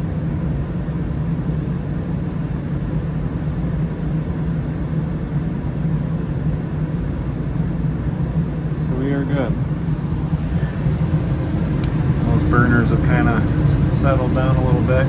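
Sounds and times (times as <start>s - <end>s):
gas furnace rumbling: 8.1s - 15.0s.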